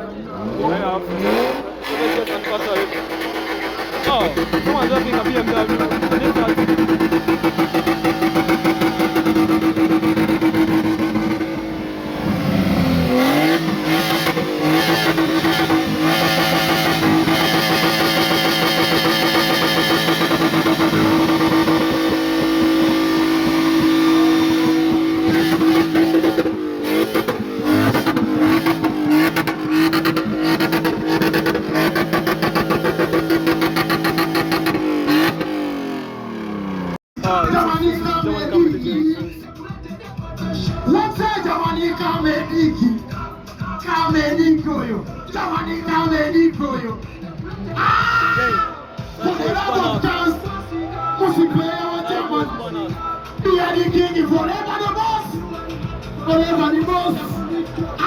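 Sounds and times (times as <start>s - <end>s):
car engine revving high: 0.0s - 37.0s.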